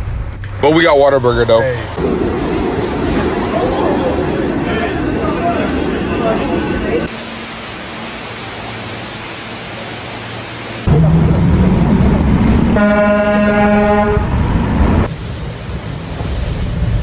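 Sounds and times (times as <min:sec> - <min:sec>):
steady hiss: 0:02.0 - 0:11.0, 0:14.7 - 0:17.0
vehicle rumble: 0:10.8 - 0:17.0
car horn: 0:12.8 - 0:14.6.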